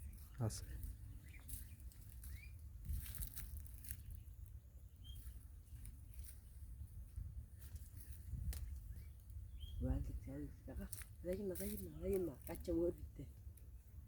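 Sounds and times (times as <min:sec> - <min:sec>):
small bird chirping: 0:00.0 - 0:06.6, 0:07.5 - 0:13.9
faint rustling and scratching: 0:10.7 - 0:13.3.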